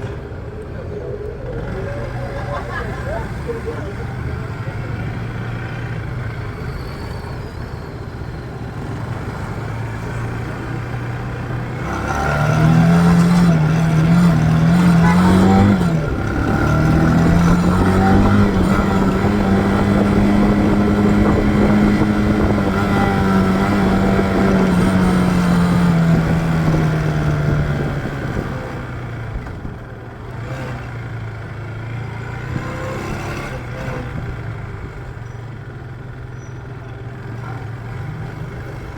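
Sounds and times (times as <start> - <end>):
motorcycle engine accelerating: 8.6 - 38.9.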